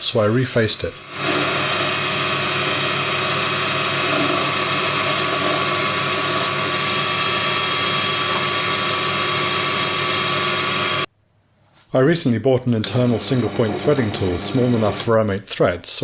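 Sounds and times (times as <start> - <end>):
mini lathe whining: 1.0 - 11.1, 12.9 - 15.1.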